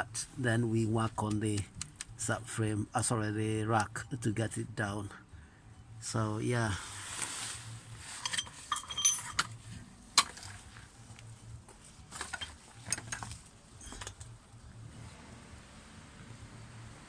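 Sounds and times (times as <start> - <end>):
sharp clicks: 1.2 - 2.1
metal tools clinking and knocking: 8.1 - 10.7, 12.1 - 14.3.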